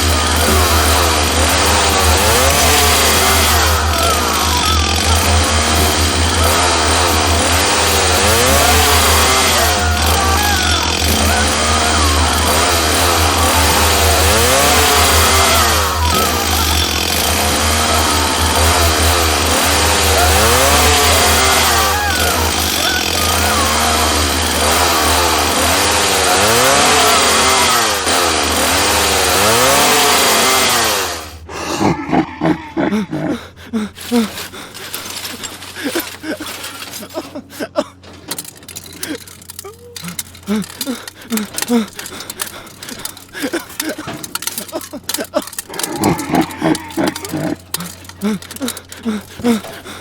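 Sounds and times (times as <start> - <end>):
motor-driven machine running: 0.0 - 50.0
knocks and clatter: 34.4 - 49.9.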